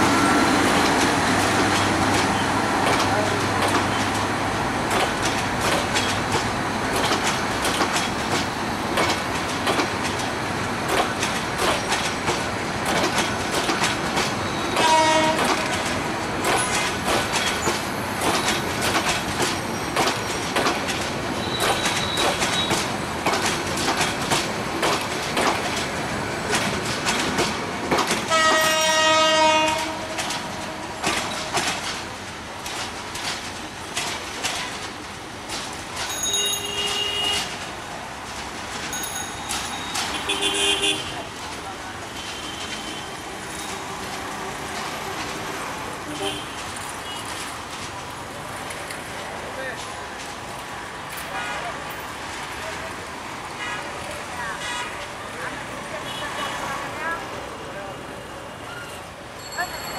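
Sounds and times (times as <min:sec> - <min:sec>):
train wheels clicking on rail joints: 0:00.0 - 0:57.5
train horn blast: 0:14.7 - 0:15.7, 0:28.3 - 0:30.4.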